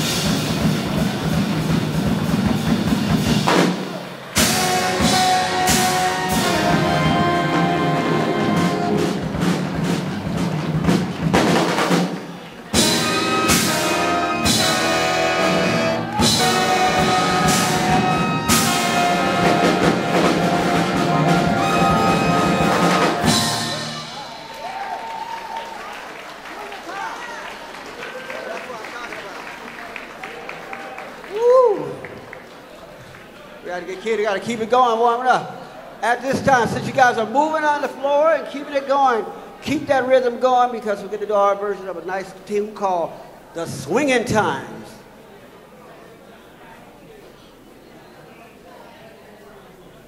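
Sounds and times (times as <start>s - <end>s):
drum and cymbal hit: 0.0s - 12.2s, 12.8s - 24.5s
big band swing jazz: 0.0s - 24.5s.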